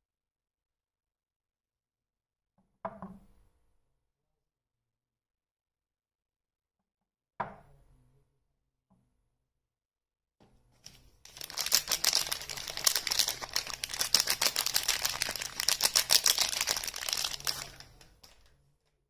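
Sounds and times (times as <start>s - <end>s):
wrapper crinkling and crackling: 10.8s - 18.5s.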